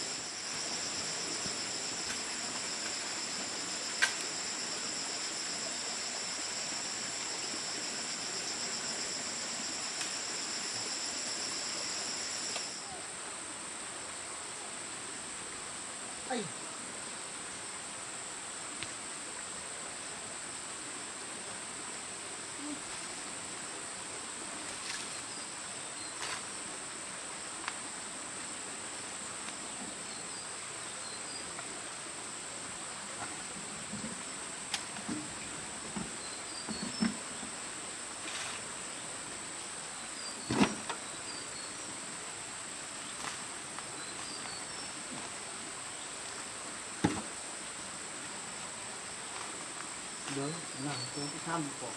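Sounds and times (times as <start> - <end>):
insects droning: 0.0 - 51.9
knocks and thuds: 47.0 - 47.3.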